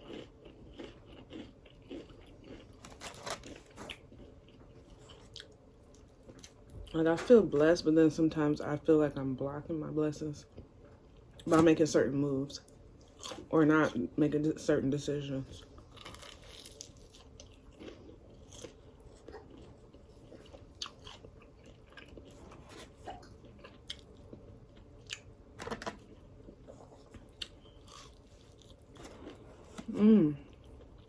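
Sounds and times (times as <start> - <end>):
crunching fried crust: 0.0 - 5.5, 15.8 - 25.3, 27.1 - 31.0
person chewing: 0.0 - 6.7, 15.8 - 25.4, 26.1 - 31.0.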